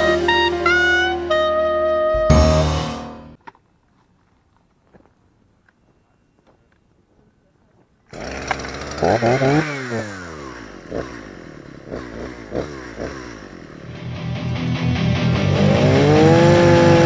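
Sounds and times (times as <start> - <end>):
chainsaw engine revving: 8.1 - 14.2, 15.2 - 17.0.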